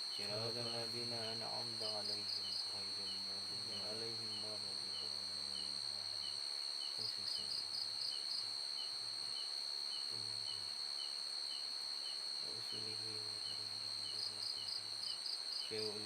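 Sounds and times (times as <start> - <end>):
cricket-like trill: 0.0 - 16.0
insect pulsing chirps: 0.0 - 16.0.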